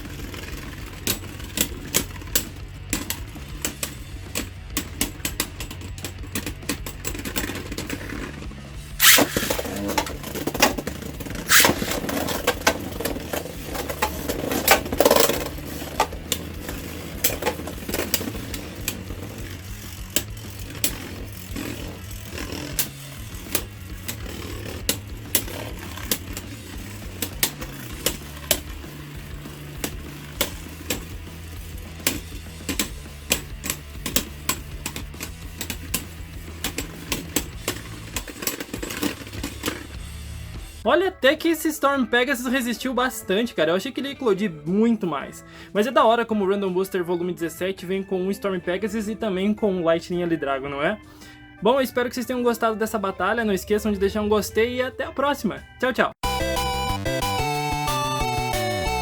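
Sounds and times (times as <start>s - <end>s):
background music with bass line: 0.0s - 59.0s
spinning tops whirring and clashing: 9.0s - 39.9s.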